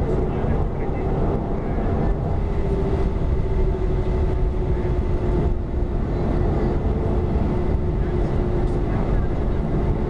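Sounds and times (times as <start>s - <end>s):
jet engines heard inside cabin: 0.0s - 10.0s.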